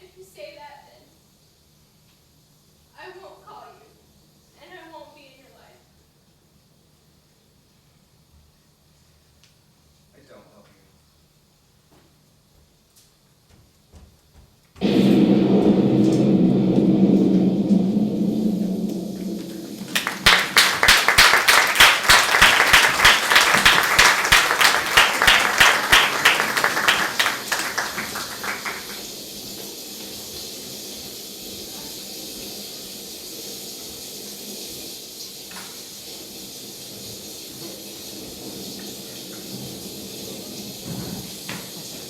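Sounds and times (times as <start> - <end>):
steady hiss: 0.0 - 13.8, 14.6 - 42.0
audience applauding: 19.2 - 29.2.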